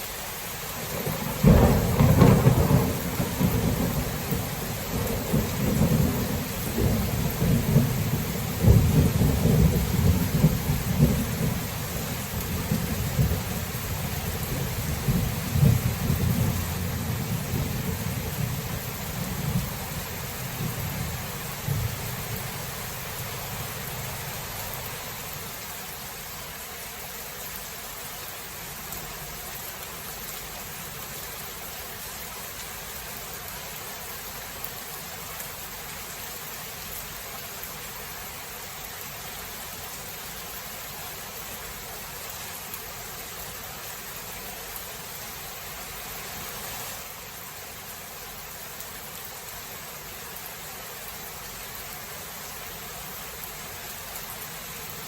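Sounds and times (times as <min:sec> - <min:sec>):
steady rain falling: 0:00.0 - 0:55.0
low thunder rumble: 0:01.0 - 0:11.8.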